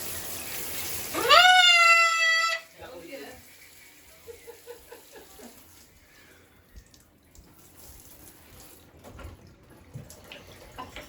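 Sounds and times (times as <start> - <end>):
water running from a tap: 0.0 - 11.0.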